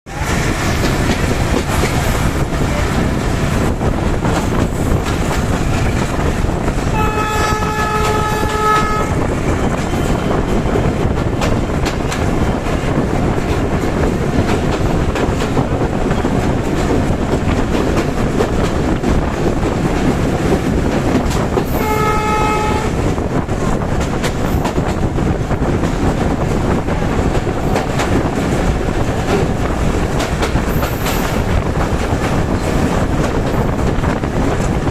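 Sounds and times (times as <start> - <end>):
train wheels rumbling and clattering: 0.1 - 34.9
train horn blast: 6.9 - 9.3, 21.7 - 23.2.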